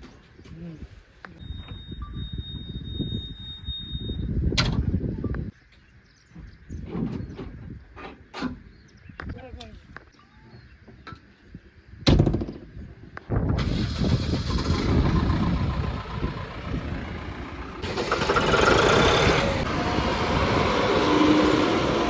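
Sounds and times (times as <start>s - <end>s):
tractor engine cranking and running: 13.6s - 22.0s.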